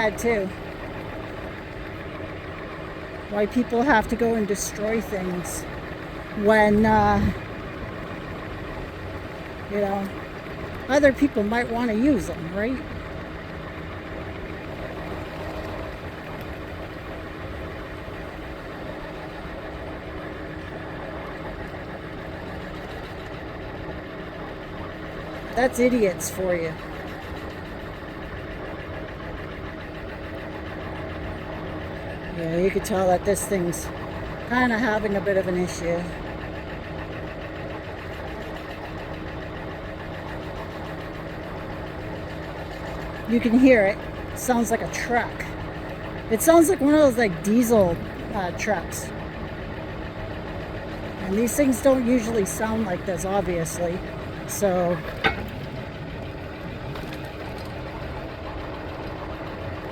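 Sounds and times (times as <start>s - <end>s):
electric scooter rumbling: 0.0s - 59.9s
faint steady hum: 0.0s - 59.9s
electric scooter rattling knock: 55.0s - 58.0s.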